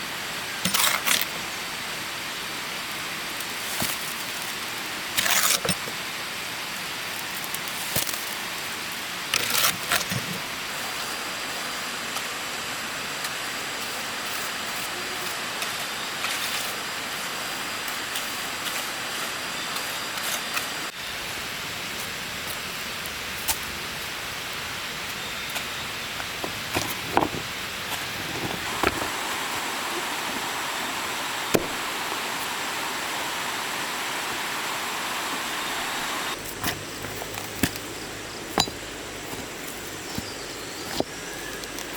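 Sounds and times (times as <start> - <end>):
stream water rushing: 28.0 - 36.4.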